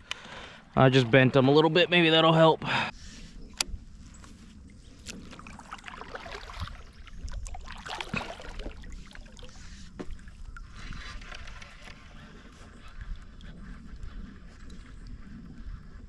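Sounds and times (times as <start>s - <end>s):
water splashing and trickling: 4.2s - 13.6s.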